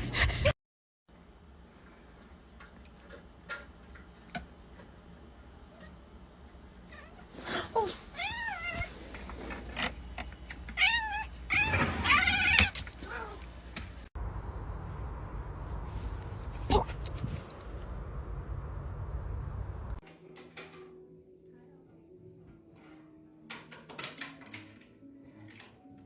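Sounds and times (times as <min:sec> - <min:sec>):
cat meowing: 0:06.9 - 0:09.0, 0:10.8 - 0:13.5.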